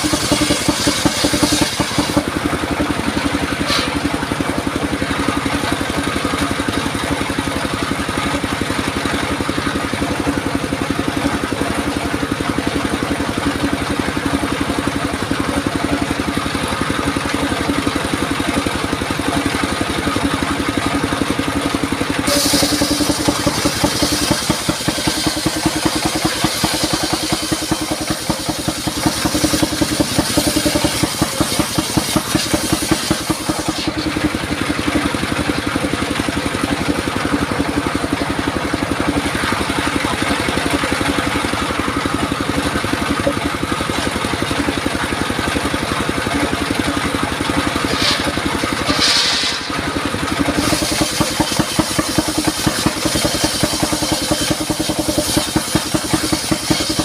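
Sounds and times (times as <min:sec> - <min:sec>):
saw blade cutting wood hiss: 0:00.0 - 0:02.3, 0:03.6 - 0:04.1, 0:22.2 - 0:34.3, 0:47.7 - 0:57.0
engine-driven circular saw running: 0:00.0 - 0:57.0.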